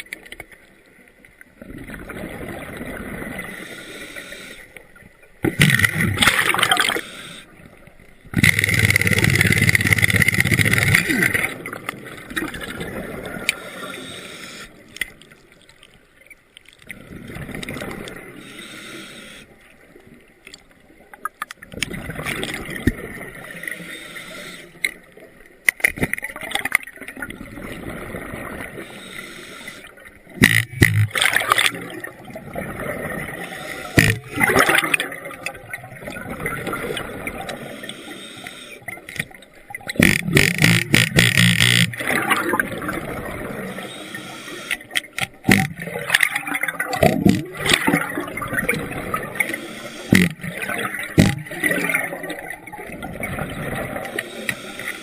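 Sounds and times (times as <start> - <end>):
underwater wash: 0.0 - 55.0
rushing air bubbles: 5.5 - 7.0, 30.4 - 37.5.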